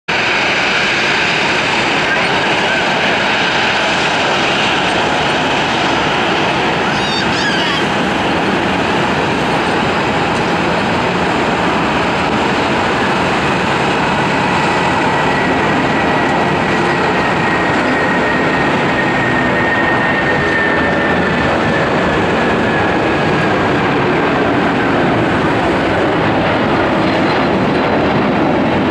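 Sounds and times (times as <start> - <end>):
jet engines roaring with whine: 0.1 - 28.9.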